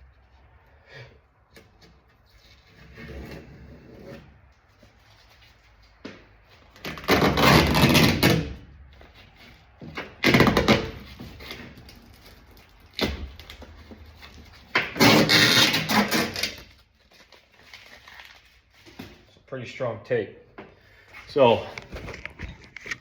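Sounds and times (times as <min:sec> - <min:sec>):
tape and plastic ripping: 0:06.6 - 0:19.3.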